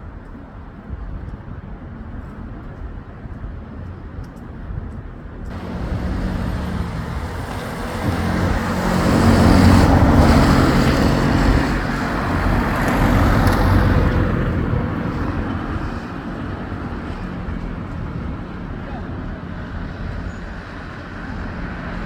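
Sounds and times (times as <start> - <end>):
vehicles passing close by: 5.5 - 22.0.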